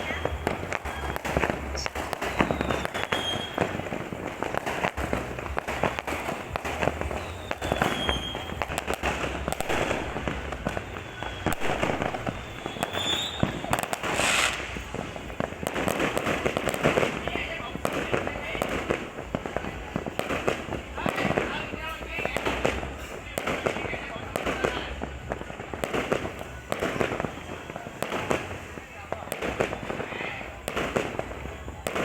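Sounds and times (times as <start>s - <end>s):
falling firework whistles: 0.0s - 18.6s
fireworks crackling and banging: 0.0s - 32.0s
brief hiss: 14.0s - 14.9s.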